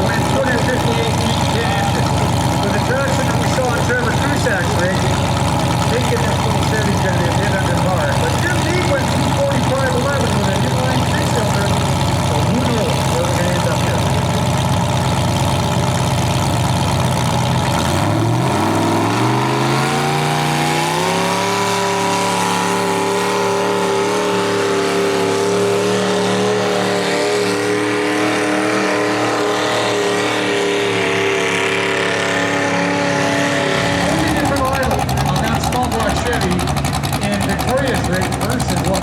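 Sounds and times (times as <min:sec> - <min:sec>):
tractor engine revving: 0:00.0 - 0:39.0.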